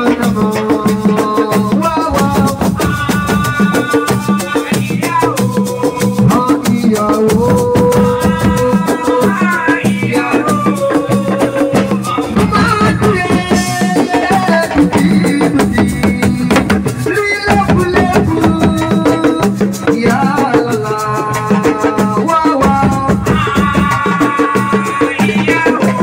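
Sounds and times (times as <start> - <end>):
fast dense drumming: 0.0 - 26.0
held melody line: 0.0 - 26.0.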